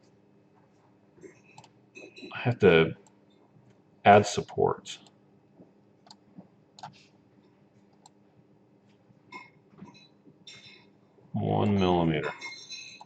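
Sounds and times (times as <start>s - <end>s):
low steady hum: 0.0s - 13.0s
computer mouse clicks: 6.0s - 6.2s, 6.8s - 7.0s, 7.9s - 8.2s
keyboard clicks: 6.8s - 7.0s.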